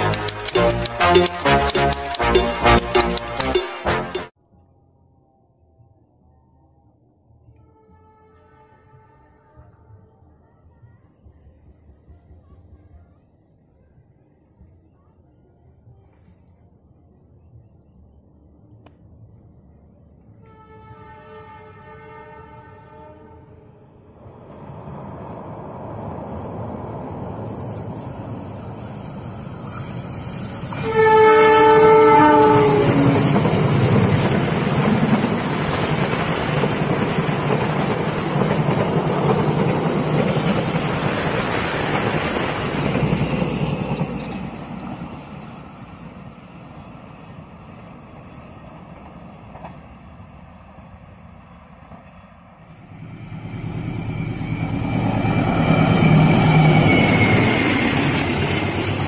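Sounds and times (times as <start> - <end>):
train wheels rushing on rails: 0.0 - 4.2, 24.1 - 59.0
locomotive horn blast: 20.4 - 23.7, 30.7 - 33.5.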